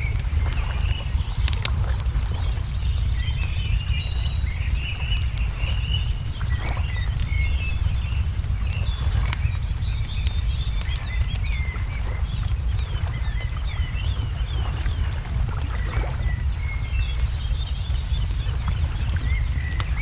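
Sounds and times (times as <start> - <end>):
wood fire crackling and popping: 0.0 - 15.8
low rumble: 0.0 - 20.0
songbirds chirping: 0.0 - 20.0.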